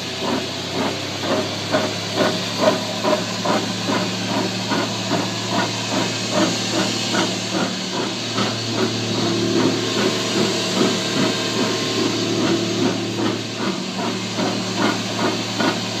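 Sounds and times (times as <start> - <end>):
rhythmic grinding: 0.1 - 16.0.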